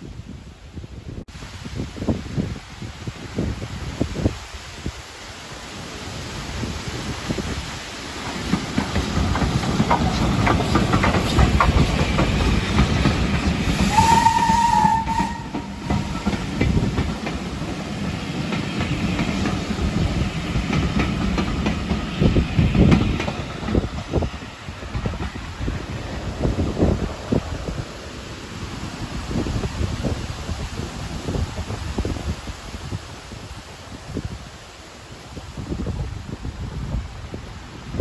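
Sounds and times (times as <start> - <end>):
steam train rumbling: 0.2 - 38.0
wheels clattering over rail joints: 8.1 - 27.8
train whistle blast: 13.7 - 16.5.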